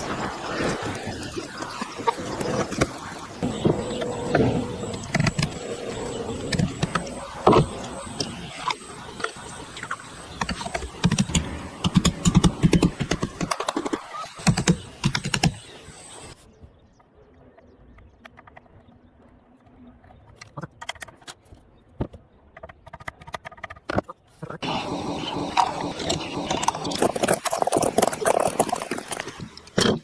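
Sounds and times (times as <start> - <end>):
rapid irregular clicks: 0.0 - 16.4, 22.6 - 30.0.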